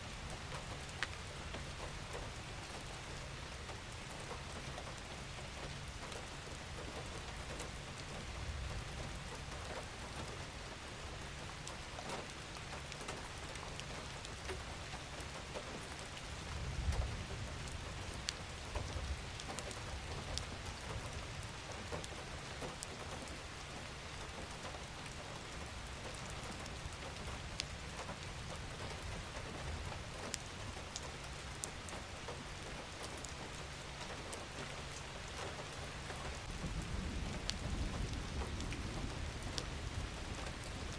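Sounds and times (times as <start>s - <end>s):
steady rain on a surface: 0.0s - 40.9s.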